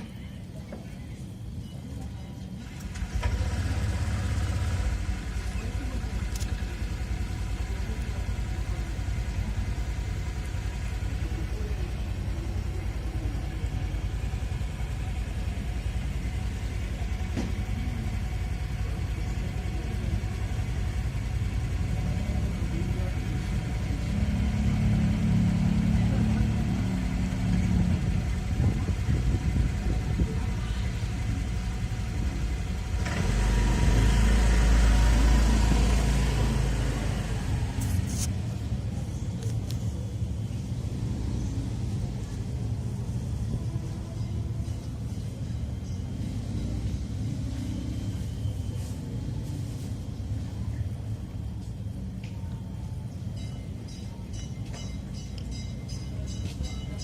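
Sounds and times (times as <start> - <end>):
vehicle engine rumbling: 0.0 - 57.0.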